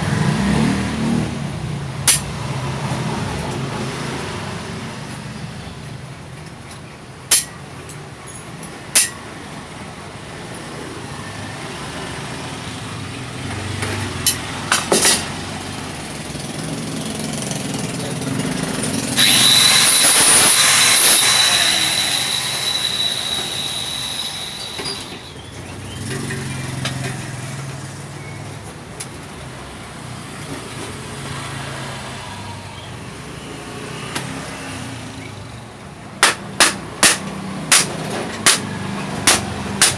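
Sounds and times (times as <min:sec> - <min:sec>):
sharp metal knocks: 0:07.3 - 0:07.6, 0:36.2 - 0:39.9
loud hissing: 0:19.2 - 0:25.4.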